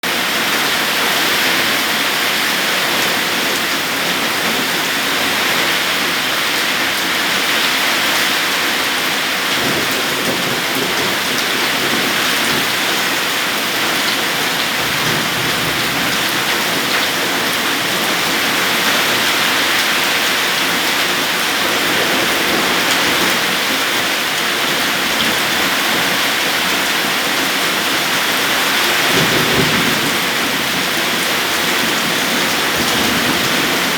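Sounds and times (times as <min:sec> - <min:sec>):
heavy rain pouring: 0:00.0 - 0:33.9
low rumbles of thunder: 0:09.4 - 0:19.6, 0:28.9 - 0:33.9.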